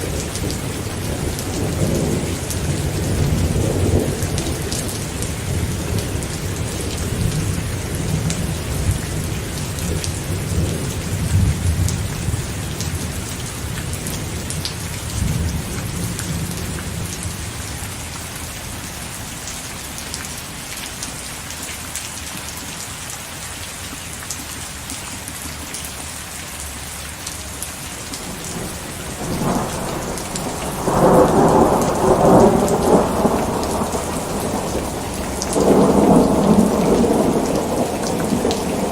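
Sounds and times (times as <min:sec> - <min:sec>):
thunder rumbling: 0:00.0 - 0:13.2, 0:28.0 - 0:38.9
crackling peal of thunder: 0:00.0 - 0:17.4, 0:28.0 - 0:38.9
steady rain falling: 0:00.0 - 0:38.9.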